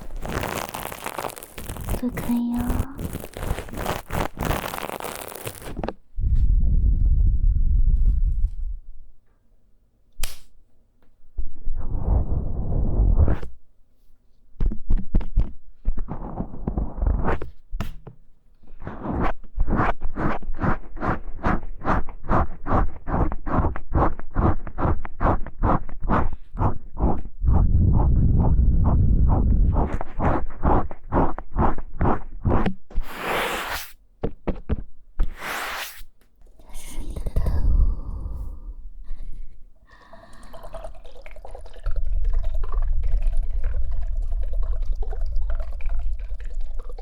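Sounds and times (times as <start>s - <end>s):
scratching on microphone: 0.0s - 8.8s, 11.8s - 13.6s, 14.6s - 17.6s, 18.7s - 34.0s, 35.2s - 36.1s.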